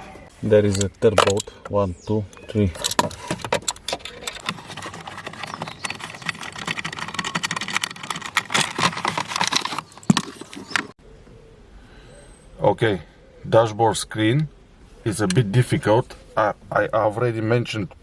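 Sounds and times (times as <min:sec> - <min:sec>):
hand tools clicking and clinking: 0:00.7 - 0:01.7, 0:02.3 - 0:11.0.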